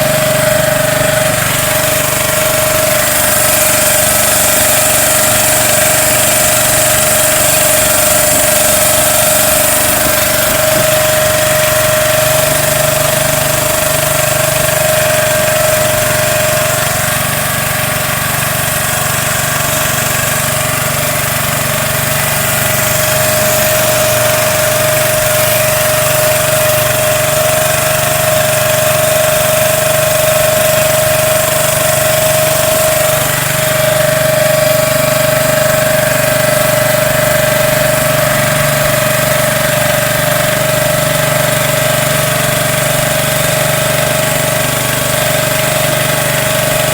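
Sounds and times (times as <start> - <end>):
steady high hum: 0.0 - 20.6
engine running steadily: 0.0 - 46.9.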